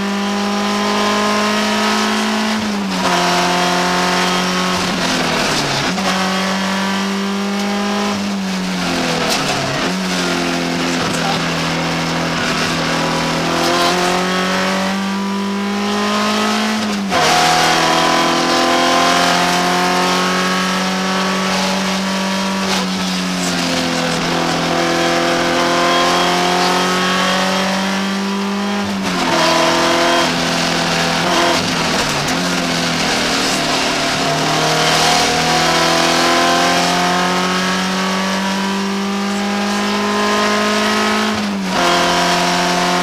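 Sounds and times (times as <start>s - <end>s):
car engine revving through gears: 0.0s - 43.0s.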